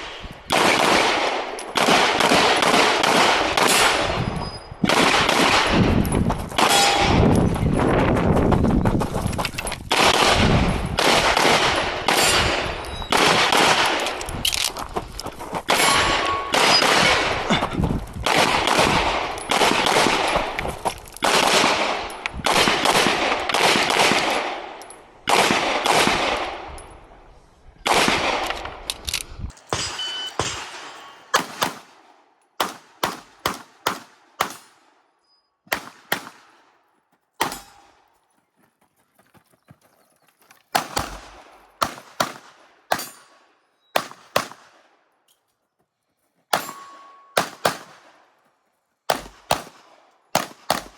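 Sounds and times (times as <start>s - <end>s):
pistol shots: 0.0s - 4.2s, 4.8s - 7.4s, 9.9s - 14.3s, 15.7s - 17.5s, 18.2s - 20.6s, 21.2s - 26.7s, 27.8s - 28.8s, 29.6s - 34.9s, 35.7s - 36.6s, 37.4s - 38.0s, 40.7s - 43.4s, 44.0s - 44.9s, 46.5s - 48.2s, 49.1s - 50.9s
steel targets clanging: 6.6s - 7.6s, 15.7s - 17.8s, 29.5s - 31.4s, 37.4s - 38.0s, 46.6s - 47.4s.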